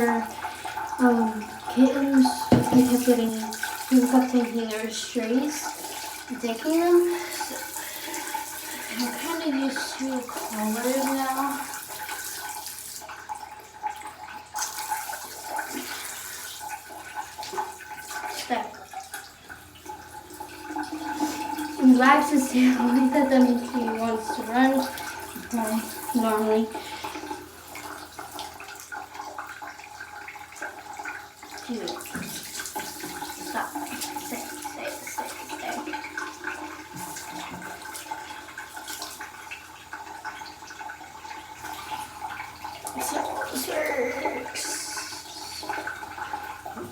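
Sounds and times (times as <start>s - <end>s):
shower water running and splashing: 0.0s - 46.9s.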